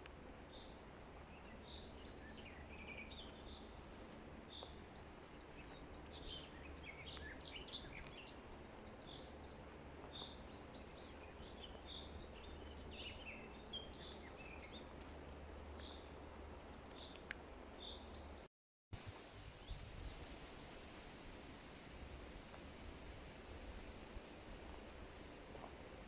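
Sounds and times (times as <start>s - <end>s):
small birds chirping: 0.5s - 18.5s
steady hiss: 19.0s - 26.0s.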